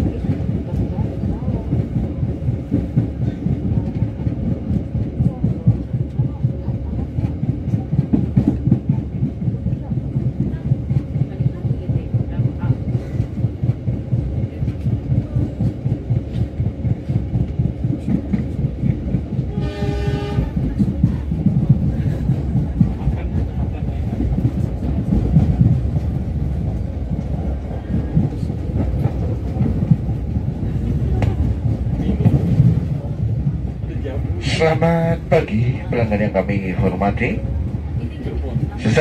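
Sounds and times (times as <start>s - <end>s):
train rumbling and clattering: 0.0s - 39.0s
train horn: 19.5s - 20.7s.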